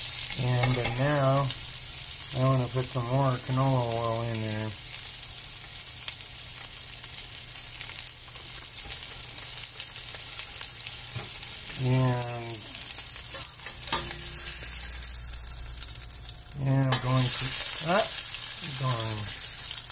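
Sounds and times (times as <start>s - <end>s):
pork chop sizzling in a pan: 0.0s - 19.9s
metal spatula scraping a pan: 13.2s - 15.1s.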